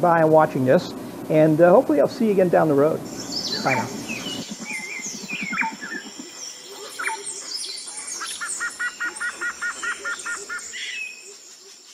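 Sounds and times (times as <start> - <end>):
birds chirping and calling: 2.6 - 11.9
thin steady high tone: 3.1 - 10.1.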